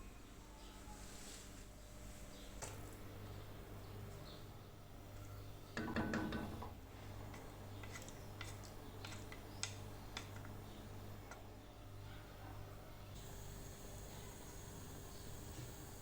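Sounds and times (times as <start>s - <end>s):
objects clicking and tapping: 7.3s - 10.6s.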